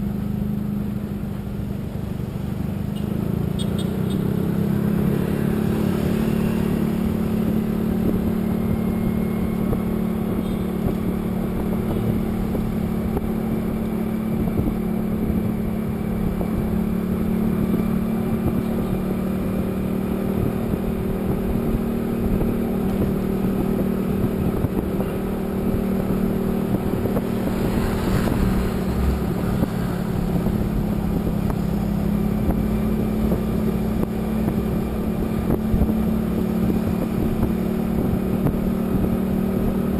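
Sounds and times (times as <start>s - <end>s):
road and wind noise: 0.0s - 39.9s
vehicle engine droning: 0.0s - 39.9s
rushing noise: 25.5s - 32.0s.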